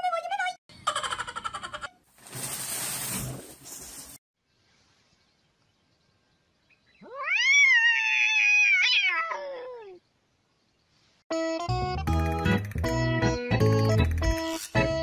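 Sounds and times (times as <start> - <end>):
cat meowing: 7.0 - 10.0.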